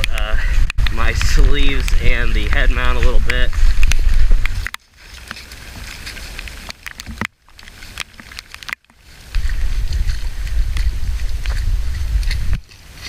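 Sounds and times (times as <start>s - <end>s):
wind buffeting microphone: 0.0s - 4.7s, 9.3s - 13.0s.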